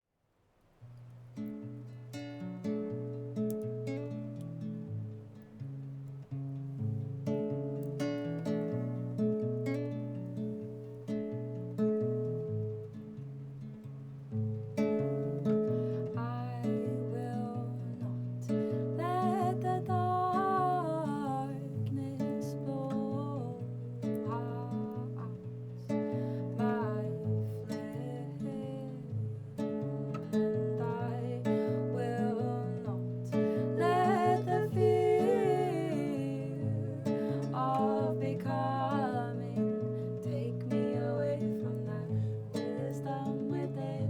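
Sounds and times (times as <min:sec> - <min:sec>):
acoustic guitar picking and strumming: 0:00.8 - 0:44.0.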